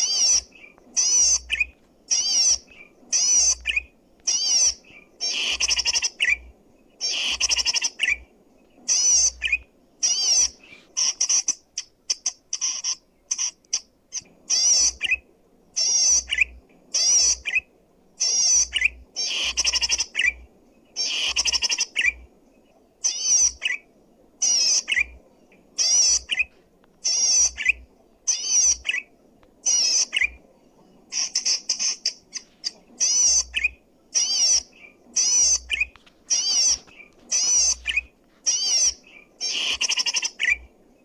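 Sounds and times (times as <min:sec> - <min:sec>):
bird singing scratchy phrases: 0:00.0 - 0:41.0.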